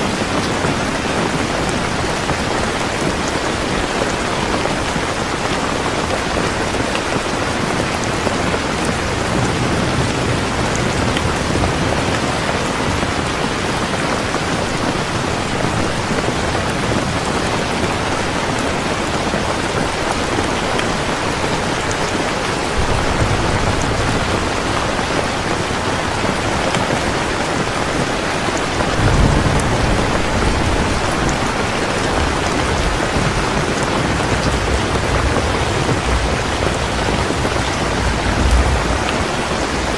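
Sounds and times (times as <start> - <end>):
heavy rain falling: 0.0 - 39.9
low rumbles of thunder: 7.6 - 14.1, 20.0 - 39.9.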